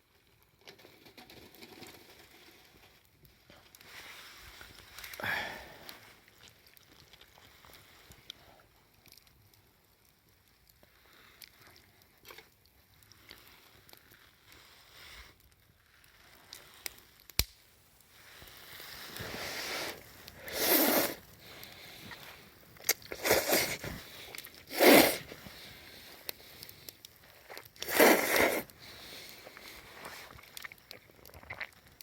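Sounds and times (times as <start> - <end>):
crunching: 16.1 - 32.0.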